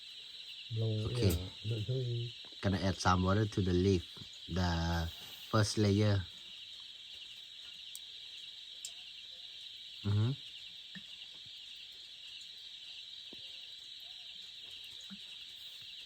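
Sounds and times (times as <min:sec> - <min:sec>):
insects chirping: 0:00.0 - 0:16.0
man's voice: 0:00.8 - 0:06.2.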